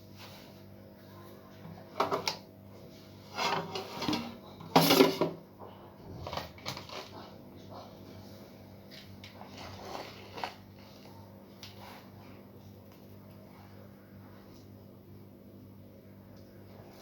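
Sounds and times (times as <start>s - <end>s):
scraping and rustling: 2.8s - 5.4s, 6.0s - 12.4s
utensils and dishes clattering: 3.3s - 5.4s, 6.2s - 7.4s.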